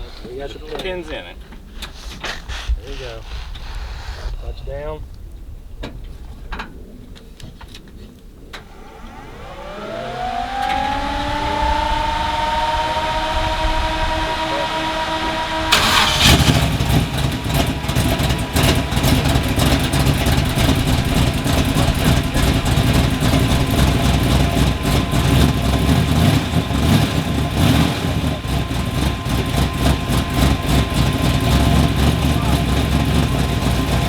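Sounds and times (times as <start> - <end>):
truck engine running loud: 8.6 - 34.0.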